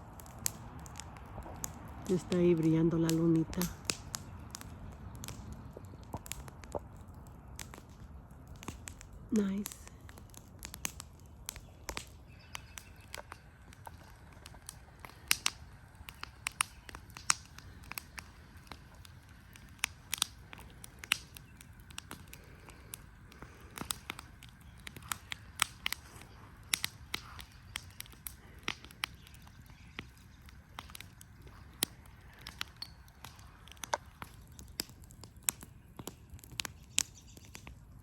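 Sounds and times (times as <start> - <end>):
campfire wood crackling and popping: 0.0 - 38.0.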